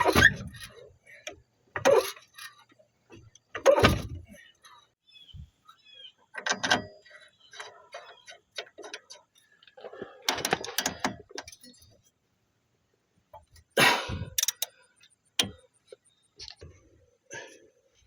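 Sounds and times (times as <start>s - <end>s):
metallic clicks of hand tools: 14.3s - 14.8s.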